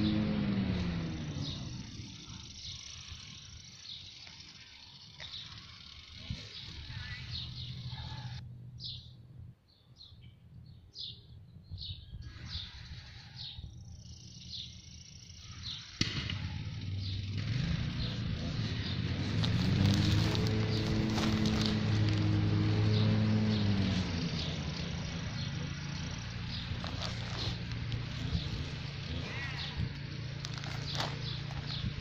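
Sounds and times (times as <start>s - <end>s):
faint outdoor background noise: 0.0s - 32.0s
songbird chirping: 16.9s - 32.0s.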